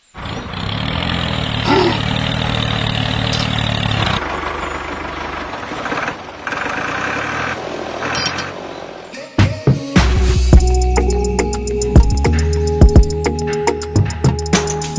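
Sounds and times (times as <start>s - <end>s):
tractor engine running: 0.0s - 9.2s.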